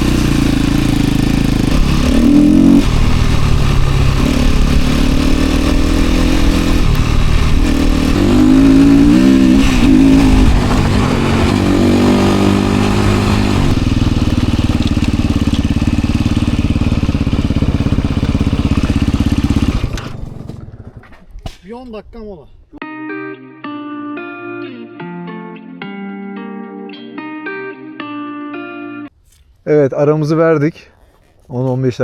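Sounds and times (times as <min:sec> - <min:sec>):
dirt bike engine revving: 0:00.0 - 0:21.1.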